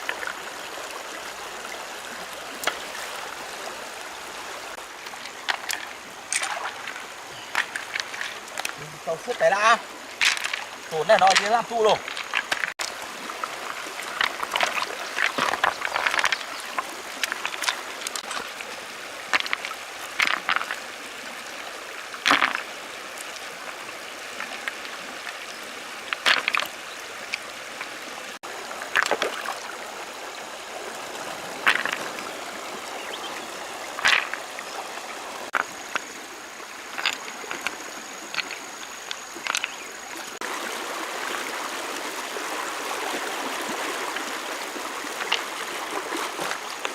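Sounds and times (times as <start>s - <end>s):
stones splashing and knocking in water: 0.0s - 0.5s, 2.5s - 3.2s, 5.0s - 25.4s, 26.0s - 28.1s, 28.7s - 29.7s, 31.2s - 33.3s, 33.9s - 34.8s, 35.5s - 36.2s, 36.8s - 40.7s, 43.5s - 46.9s
shallow stream running: 0.0s - 46.9s.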